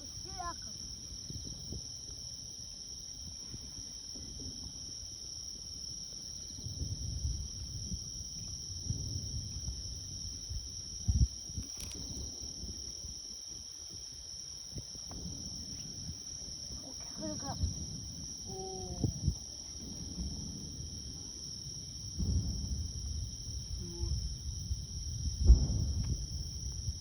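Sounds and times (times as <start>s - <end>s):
crickets chirring: 0.0s - 27.0s
distant fireworks rumble: 3.3s - 13.1s, 14.7s - 27.0s
firework boom: 17.2s - 27.0s.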